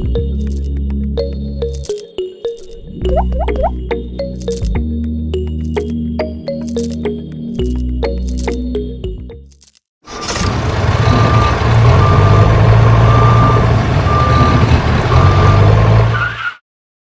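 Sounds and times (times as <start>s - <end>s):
truck engine running: 10.1s - 16.2s
reversing alarm beeping: 11.0s - 15.7s.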